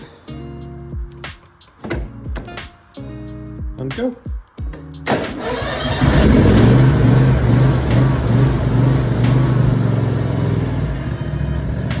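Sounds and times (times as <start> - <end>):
lawn tractor engine running: 5.1 - 12.0.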